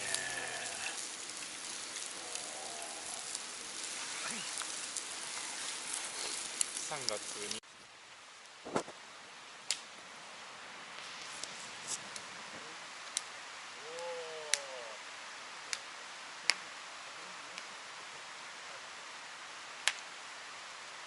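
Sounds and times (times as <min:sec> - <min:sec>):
campfire crackling: 0:00.0 - 0:21.0
food frying hiss: 0:00.0 - 0:21.0.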